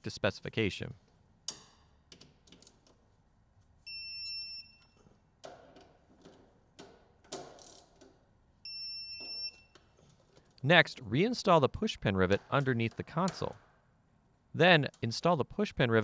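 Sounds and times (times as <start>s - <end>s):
tool clicking on fasteners: 12.3s - 13.8s.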